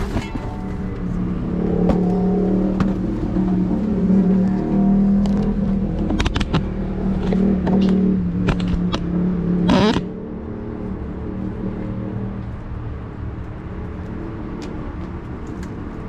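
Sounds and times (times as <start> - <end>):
rummaging through dumpster: 0.0 - 1.1.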